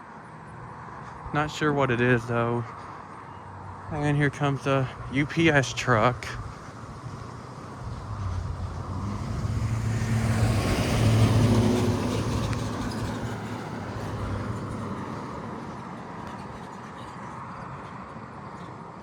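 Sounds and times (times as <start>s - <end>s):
truck driving past: 7.8s - 16.6s.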